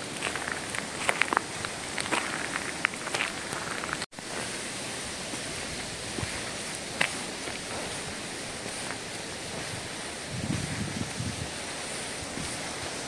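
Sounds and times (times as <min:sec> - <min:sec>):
footsteps on forest floor: 0:00.0 - 0:13.0
steady rushing outdoor noise: 0:00.0 - 0:13.0.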